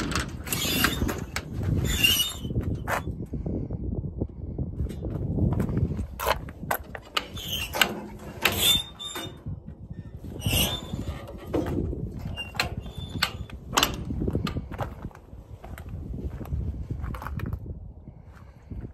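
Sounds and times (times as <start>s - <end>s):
short high squeaks: 0.3s - 3.1s, 7.2s - 14.1s.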